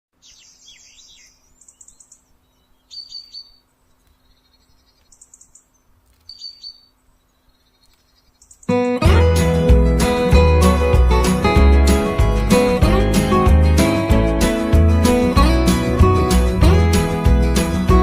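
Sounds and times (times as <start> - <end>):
birds chirping: 0.2 - 18.0
acoustic guitar music: 8.7 - 18.0.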